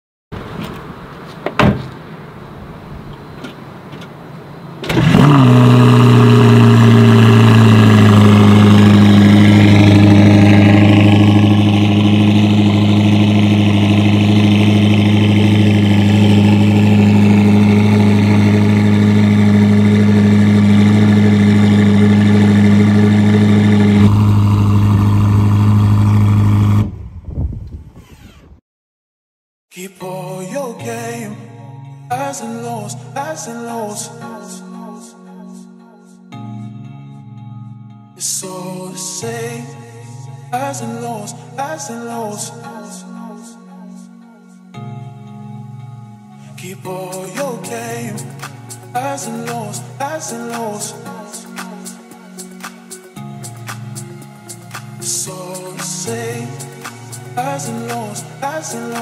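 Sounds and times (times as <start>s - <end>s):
car engine starting and idling: 0.4s - 28.6s.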